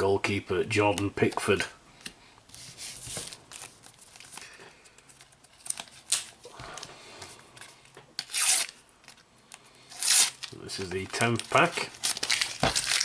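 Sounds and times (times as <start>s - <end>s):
sticker wrapper crinkling: 10.0s - 13.0s
stickers tapping and rustling: 10.8s - 13.0s.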